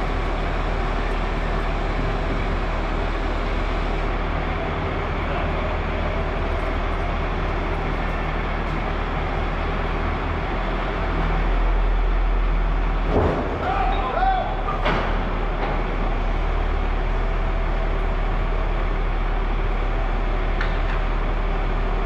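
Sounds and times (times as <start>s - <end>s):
machinery humming: 0.0s - 22.0s.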